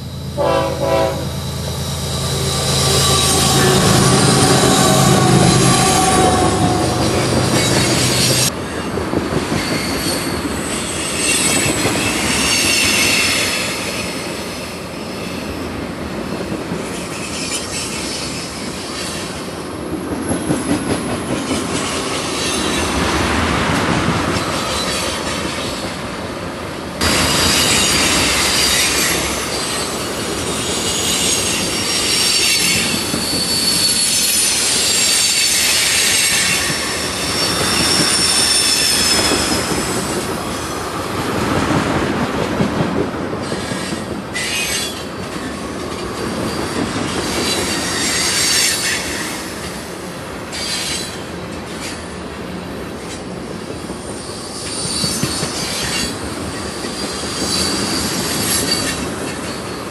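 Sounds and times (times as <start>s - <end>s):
steel wheels rumbling on rail: 0.0s - 59.9s
high-pitched wheel squeal: 0.1s - 8.5s, 27.0s - 40.2s, 54.3s - 59.9s.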